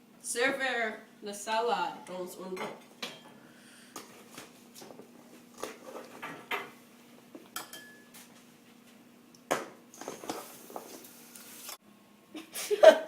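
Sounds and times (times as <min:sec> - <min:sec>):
utensils clinking against dishes: 0:07.6 - 0:08.2.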